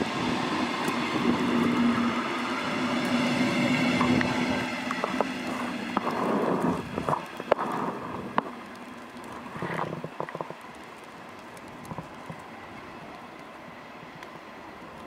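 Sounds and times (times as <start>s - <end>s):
train rushing past: 0.0s - 6.8s
steady hiss: 0.0s - 15.0s.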